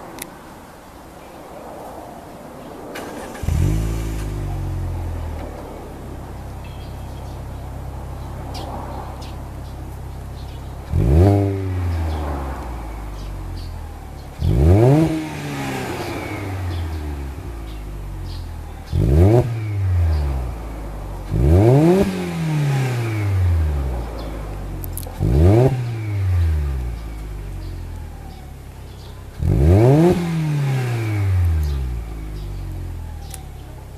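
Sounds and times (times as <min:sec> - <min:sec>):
car engine revving: 0:02.9 - 0:33.9.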